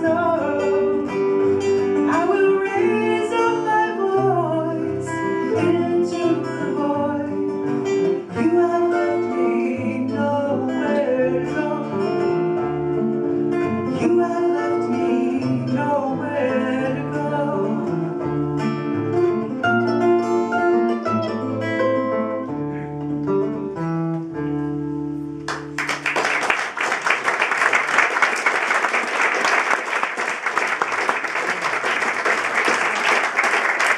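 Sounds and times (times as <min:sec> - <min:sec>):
acoustic guitar picking: 0:00.0 - 0:26.1
audience applause: 0:25.5 - 0:33.9.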